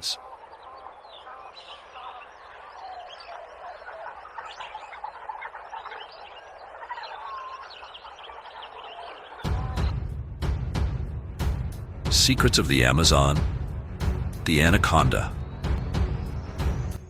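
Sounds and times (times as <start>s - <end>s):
birds whistling: 0.0s - 10.0s
frogs chirping: 0.0s - 10.0s
booming drum-heavy music: 9.5s - 17.0s.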